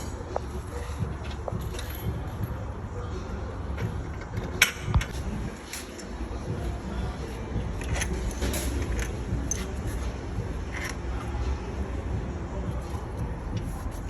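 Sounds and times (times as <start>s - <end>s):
metallic clicks and scrapes: 7.7s - 11.4s.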